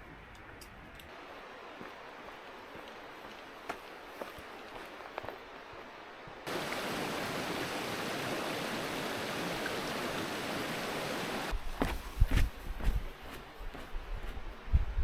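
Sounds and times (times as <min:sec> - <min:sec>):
stream water flowing: 0:01.1 - 0:11.6.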